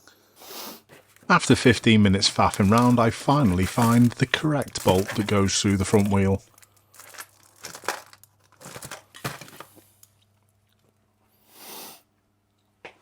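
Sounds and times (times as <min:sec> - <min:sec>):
rustling and crinkling handling: 0:00.9 - 0:11.0.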